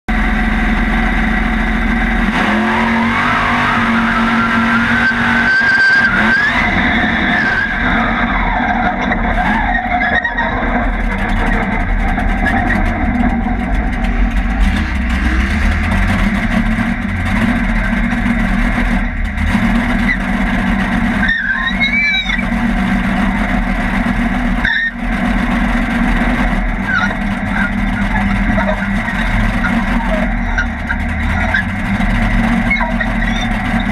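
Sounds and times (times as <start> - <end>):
race car engine accelerating: 0.1 - 33.9.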